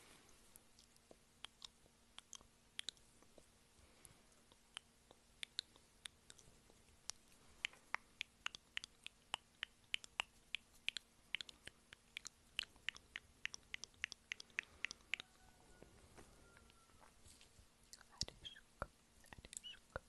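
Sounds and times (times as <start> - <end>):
wet chewing clicks: 0.8 - 3.1, 4.4 - 15.2.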